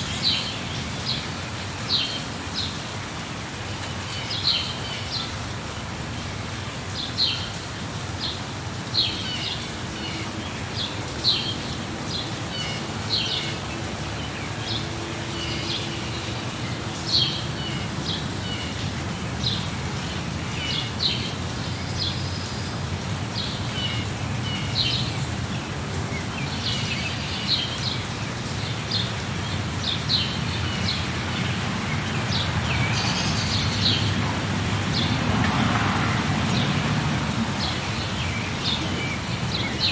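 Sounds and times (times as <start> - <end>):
small birds chirping: 37.5 - 39.9.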